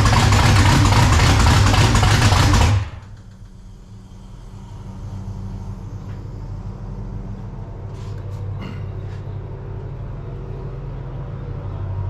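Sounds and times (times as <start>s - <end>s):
car engine running without mufflers: 0.0s - 4.4s.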